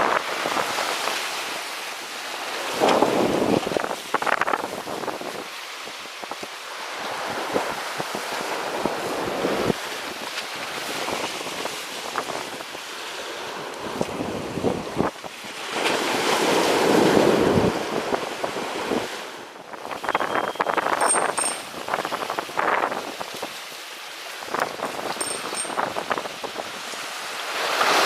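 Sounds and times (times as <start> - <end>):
waves washing in: 0.0 - 28.0
wind buffeting microphone: 13.9 - 23.6, 24.4 - 27.0.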